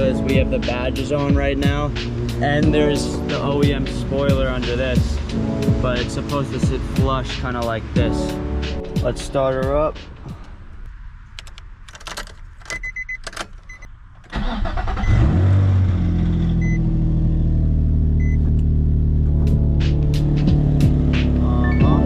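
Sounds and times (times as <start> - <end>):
car engine starting and idling: 0.0 - 22.0.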